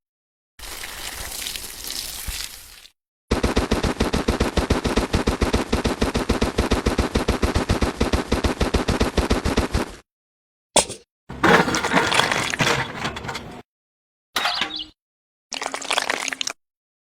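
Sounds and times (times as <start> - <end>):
rapid heavy pounding blows: 3.3 - 10.0.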